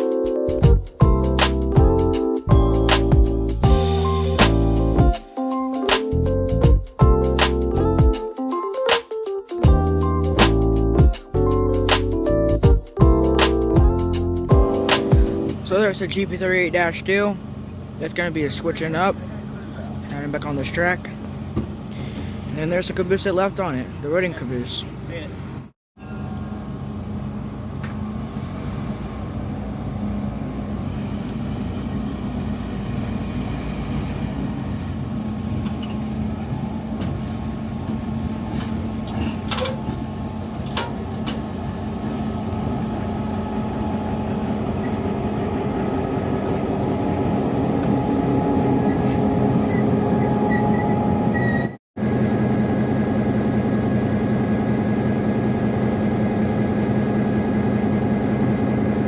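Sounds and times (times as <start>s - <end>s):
diesel locomotive engine running: 0.5s - 5.1s, 9.7s - 59.0s.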